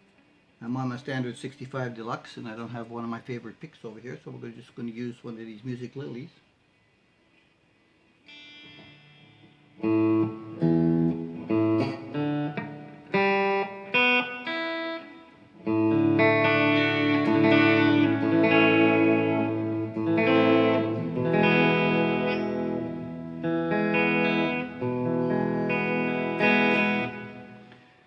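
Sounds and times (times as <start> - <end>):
electric guitar chords: 8.2 - 28.0.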